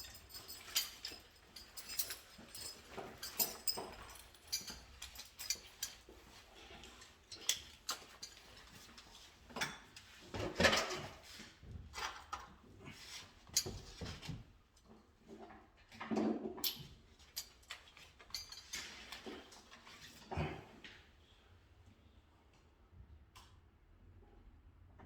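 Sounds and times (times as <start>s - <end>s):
metal tools clicking and clinking: 0.0s - 6.1s, 16.6s - 19.4s.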